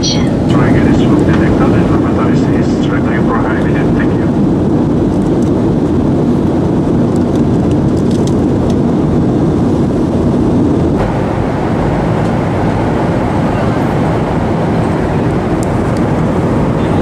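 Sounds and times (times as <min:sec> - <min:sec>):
air rushing over fuselage: 0:00.0 - 0:07.0, 0:09.1 - 0:17.0
low rumble of jet engines: 0:00.0 - 0:17.0.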